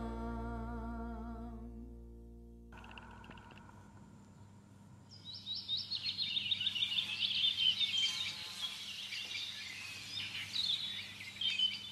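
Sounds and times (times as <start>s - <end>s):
small birds chirping: 4.3s - 11.9s.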